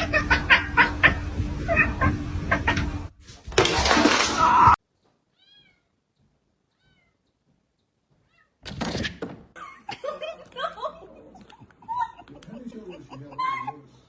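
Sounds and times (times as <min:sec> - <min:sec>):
cat meowing: 0:05.3 - 0:06.0, 0:06.7 - 0:07.2, 0:08.2 - 0:08.6.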